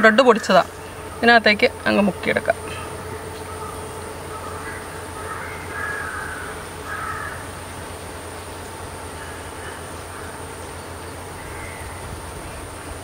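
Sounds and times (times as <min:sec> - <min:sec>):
bird calling: 0:00.0 - 0:13.0
steady low hum: 0:00.0 - 0:13.0.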